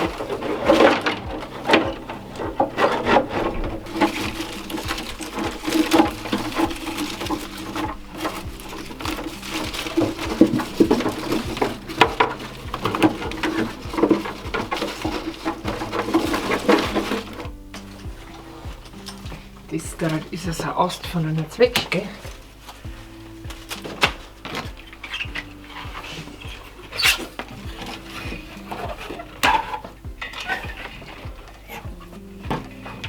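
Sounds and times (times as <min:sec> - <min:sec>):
dry branch rustling and scraping: 0:00.0 - 0:33.0
twigs knocking: 0:00.0 - 0:33.0.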